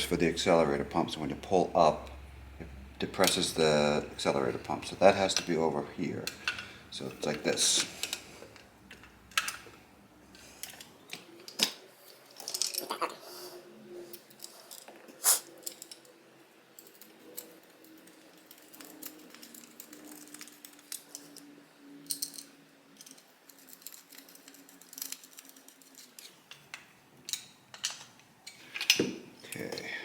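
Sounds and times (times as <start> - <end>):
faint steady hum: 0.0 - 30.0
small metal parts clicking: 4.5 - 9.7, 10.3 - 13.0, 14.1 - 29.8.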